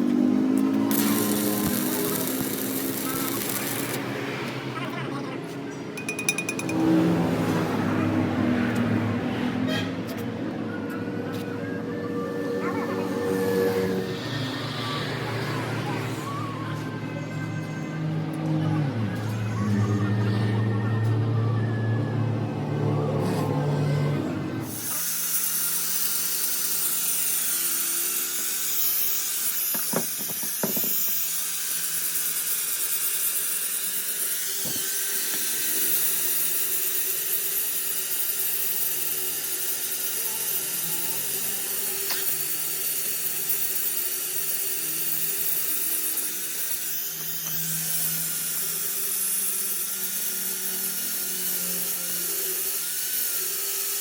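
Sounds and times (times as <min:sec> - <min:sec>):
power tool whining: 0:00.0 - 0:04.6, 0:11.9 - 0:17.0, 0:24.5 - 0:54.0.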